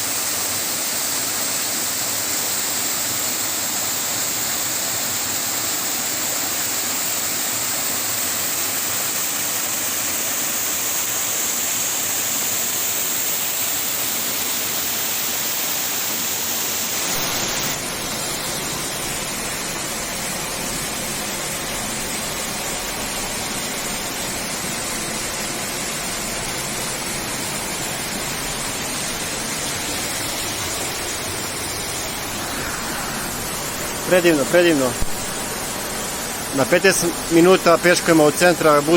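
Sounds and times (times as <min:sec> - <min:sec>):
waterfall rushing: 0:12.2 - 0:20.0, 0:26.1 - 0:38.9.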